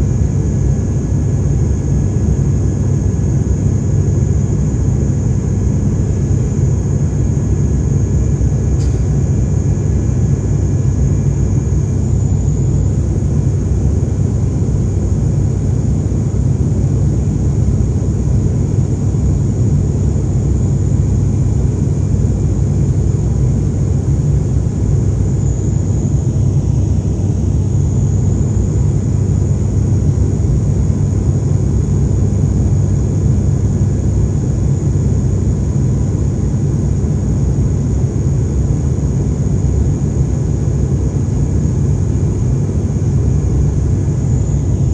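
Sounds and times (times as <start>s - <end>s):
engine and airflow rumble: 0.0s - 44.9s
thin high whine: 8.8s - 12.8s.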